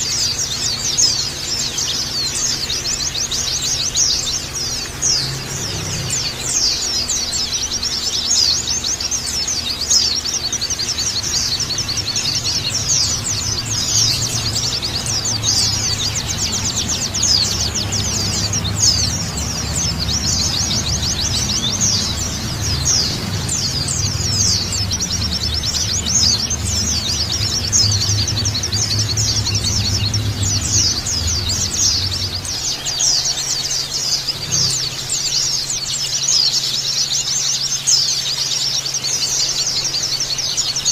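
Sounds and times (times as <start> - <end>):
flock of birds chirping: 0.0 - 40.9
low hum: 9.4 - 35.6.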